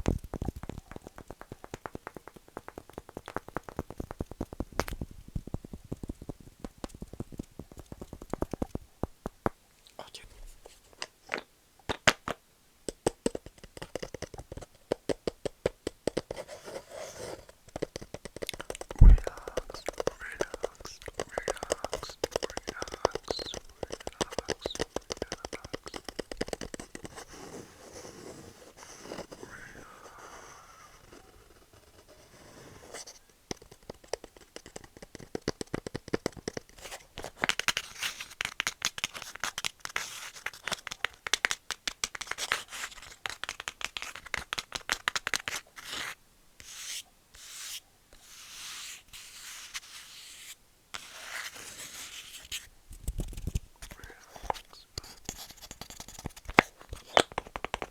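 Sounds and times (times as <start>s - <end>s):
tapping and scratching on wood: 0.0s - 9.6s, 12.9s - 28.1s, 33.0s - 46.1s, 51.0s - 57.9s.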